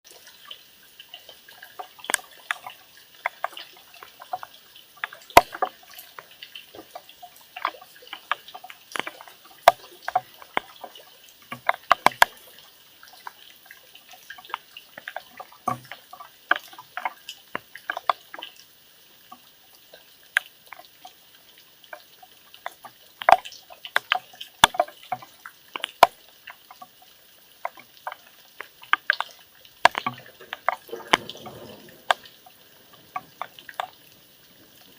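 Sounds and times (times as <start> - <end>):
faint steady hiss: 0.1 - 34.9
raindrops tapping on hard surface: 0.1 - 34.9.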